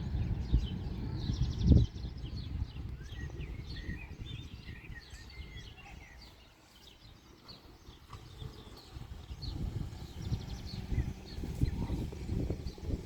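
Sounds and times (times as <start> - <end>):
songbirds chirping: 0.0 - 13.0
low rumbling noise: 8.1 - 13.0.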